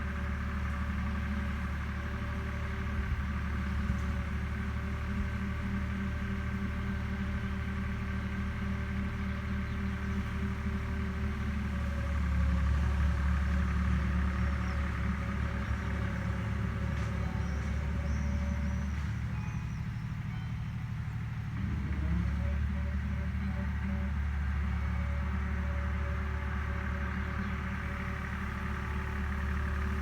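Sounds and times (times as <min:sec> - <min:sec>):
machine engine humming: 0:09.6 - 0:30.0.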